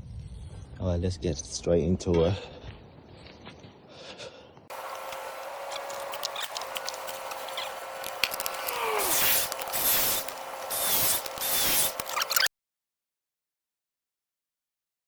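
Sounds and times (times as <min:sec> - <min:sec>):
rasping strokes on pipe: 0:04.7 - 0:12.2.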